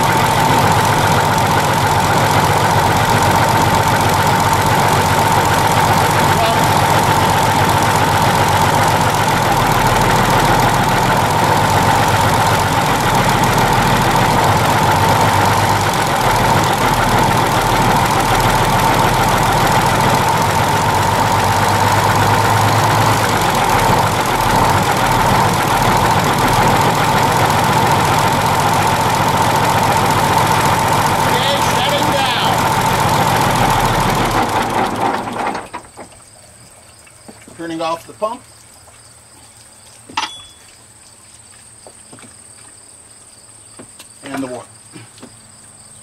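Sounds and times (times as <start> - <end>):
diesel engine drone with whine: 0.0 - 36.6.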